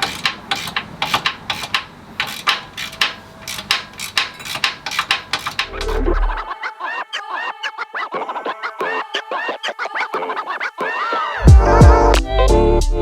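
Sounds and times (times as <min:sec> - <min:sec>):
hand tools clicking and knocking: 0:00.0 - 0:06.5.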